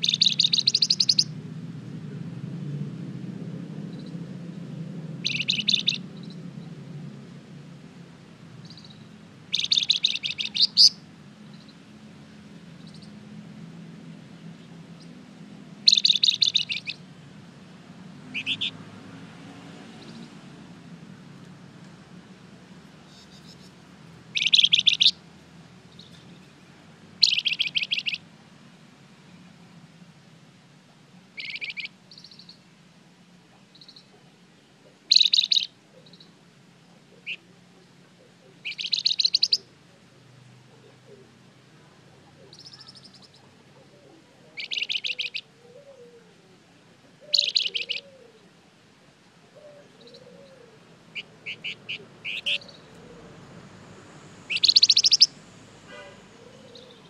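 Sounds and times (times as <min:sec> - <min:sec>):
songbird trilling: 0:00.0 - 0:01.3, 0:05.2 - 0:06.7, 0:08.6 - 0:11.9, 0:12.8 - 0:13.2, 0:15.8 - 0:17.0, 0:18.1 - 0:18.8, 0:23.0 - 0:25.2, 0:27.2 - 0:28.3, 0:31.4 - 0:32.6, 0:33.6 - 0:34.1, 0:35.0 - 0:36.4, 0:37.1 - 0:37.5, 0:38.2 - 0:39.8, 0:42.2 - 0:46.2, 0:47.2 - 0:48.4, 0:49.6 - 0:53.3, 0:54.4 - 0:55.4, 0:56.4 - 0:57.0.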